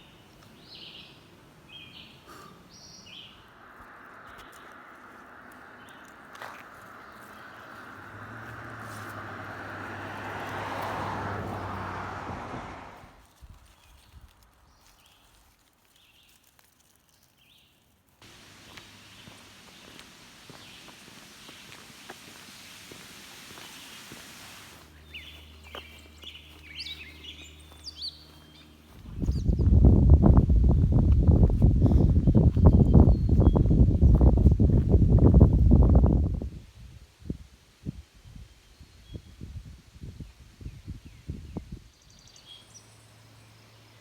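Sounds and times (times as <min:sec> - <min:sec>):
songbirds chirping: 0:00.0 - 0:34.9, 0:40.2 - 0:44.0
vehicle driving past: 0:03.4 - 0:13.2
soft hiss: 0:18.2 - 0:24.9.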